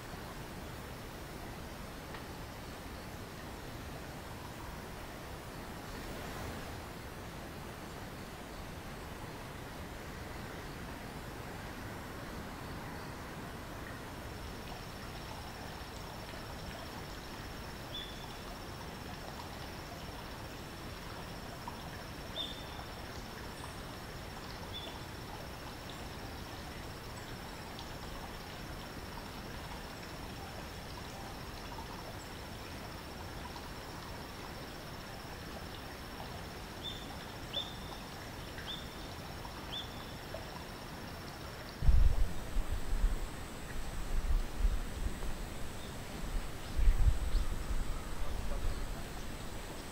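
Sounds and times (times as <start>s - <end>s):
outdoor background hiss: 0.0s - 49.9s.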